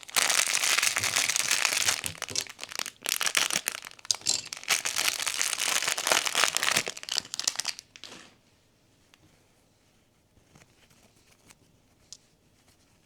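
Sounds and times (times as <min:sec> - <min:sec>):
packaging crinkling: 0:00.0 - 0:08.3.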